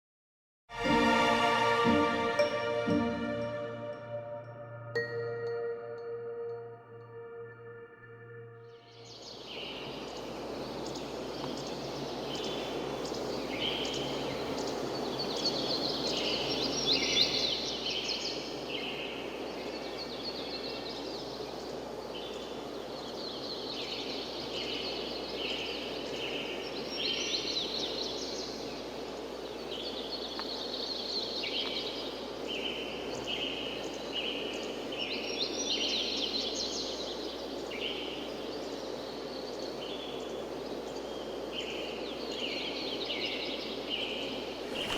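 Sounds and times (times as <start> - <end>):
birds singing: 29.5 - 44.9.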